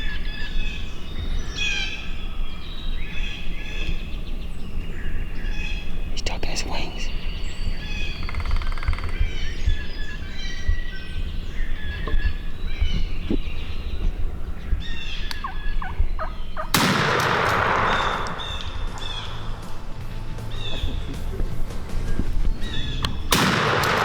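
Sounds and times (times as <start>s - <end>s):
songbirds chirping: 0.0s - 24.0s
turkey gobbling: 15.0s - 23.8s
gunshot with echo: 16.6s - 20.0s, 23.1s - 24.0s.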